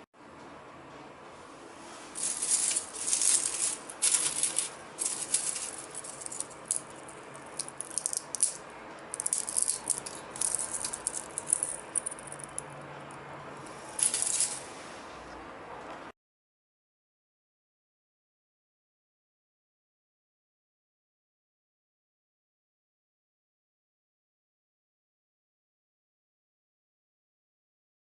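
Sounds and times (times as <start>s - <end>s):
dried onion pieces rattling: 2.2s - 12.7s, 13.9s - 14.6s.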